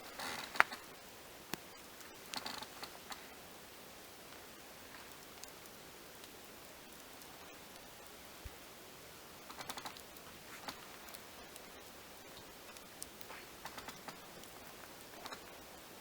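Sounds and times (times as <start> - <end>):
background hiss: 0.0 - 16.0
small clicks and taps: 0.2 - 0.9, 1.5 - 3.2, 9.5 - 15.6.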